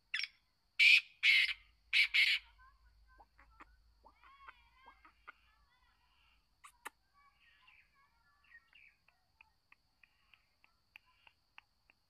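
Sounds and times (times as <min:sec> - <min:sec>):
faint bird chirping: 0:00.0 - 0:12.0
short evenly spaced ticks: 0:06.6 - 0:12.0.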